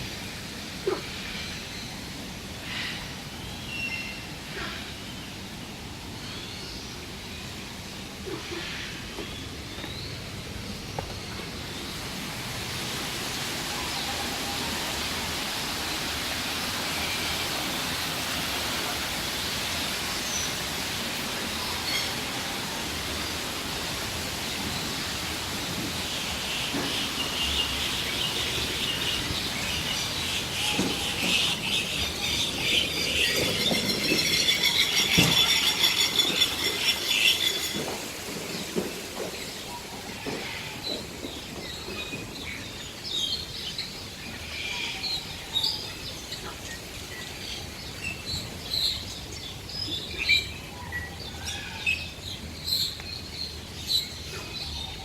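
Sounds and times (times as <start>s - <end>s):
birds chattering: 24.4s - 55.0s.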